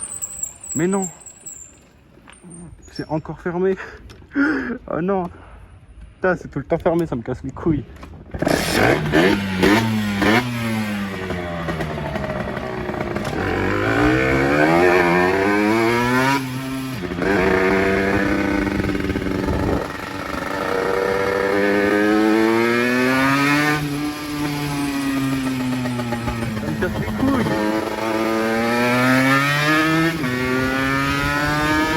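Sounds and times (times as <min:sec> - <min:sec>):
motorcycle engine revving: 0:08.3 - 0:31.9.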